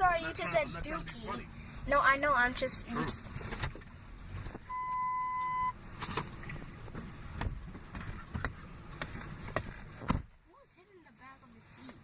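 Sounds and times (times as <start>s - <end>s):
car cabin rumble: 0.0s - 12.0s
steady beep: 4.7s - 5.8s.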